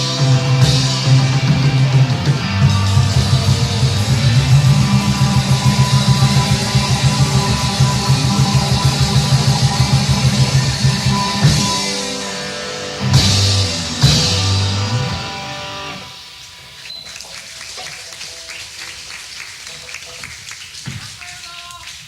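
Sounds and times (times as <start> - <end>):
rock band closing chords: 0.0 - 16.2
crashing cymbals: 0.0 - 16.8
audience applause: 1.2 - 11.6, 16.7 - 22.0.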